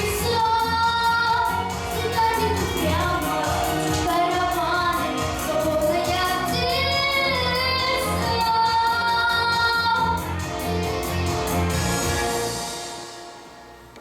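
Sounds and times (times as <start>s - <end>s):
young woman singing pop song: 0.0s - 10.6s
backing track with drums and bass: 0.0s - 13.0s.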